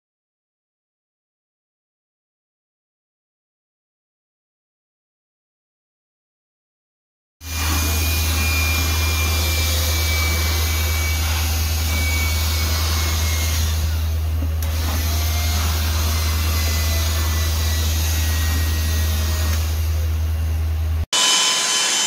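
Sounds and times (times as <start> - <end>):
handheld vacuum whining: 7.4 - 20.1, 21.1 - 22.0.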